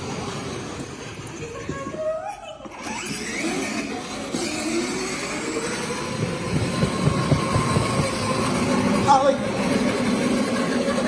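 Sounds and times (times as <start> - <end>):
vehicle rumbling: 2.8 - 11.0.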